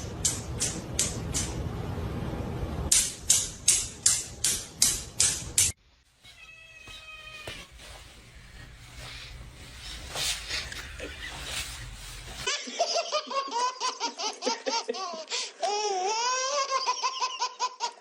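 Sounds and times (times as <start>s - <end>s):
cat meowing: 6.2s - 7.7s.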